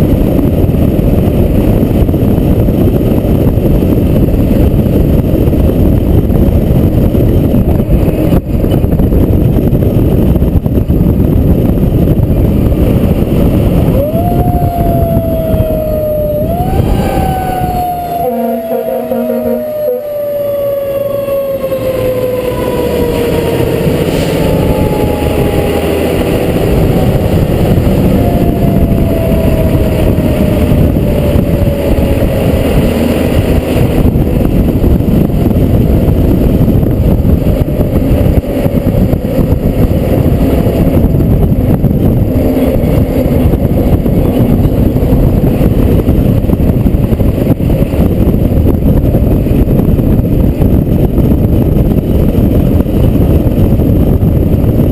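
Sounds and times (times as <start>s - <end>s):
engine and road rumble: 0.0s - 54.9s
fire truck siren winding down: 13.8s - 35.2s.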